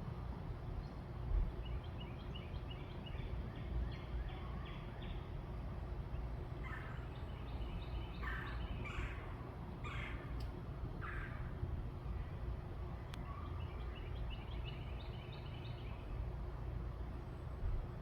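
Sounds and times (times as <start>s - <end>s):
birds calling: 6.0s - 12.1s, 13.1s - 16.3s.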